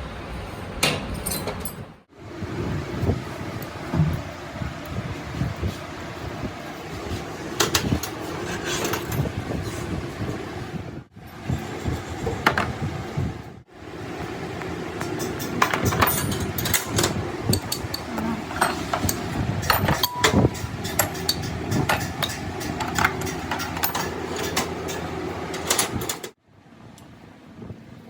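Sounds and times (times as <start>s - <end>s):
metal clanks and knocks: 15.0s - 26.3s.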